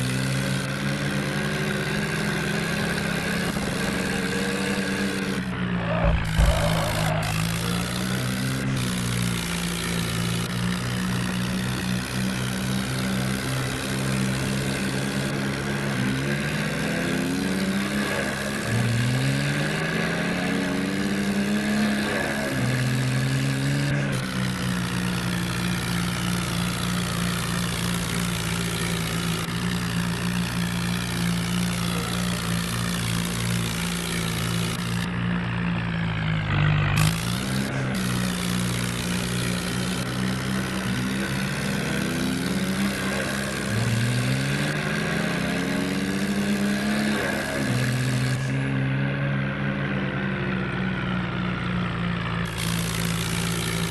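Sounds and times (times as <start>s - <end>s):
tractor engine running and revving: 0.0s - 53.9s.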